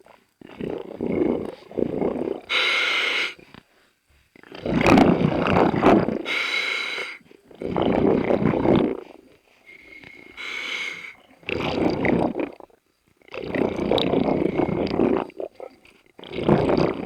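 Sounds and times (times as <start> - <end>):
exhaled bubbles rumbling: 0.0 - 2.6, 4.4 - 6.3, 7.5 - 9.2, 11.2 - 17.0
regulator inhale hiss: 2.5 - 4.0, 6.2 - 7.2, 9.6 - 11.2.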